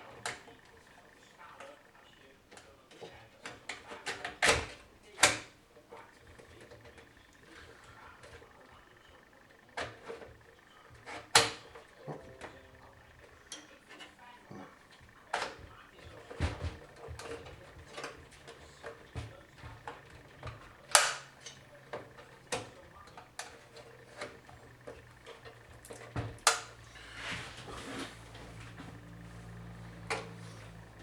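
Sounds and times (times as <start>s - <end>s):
computer parts clicking and knocking: 8.2s - 26.9s.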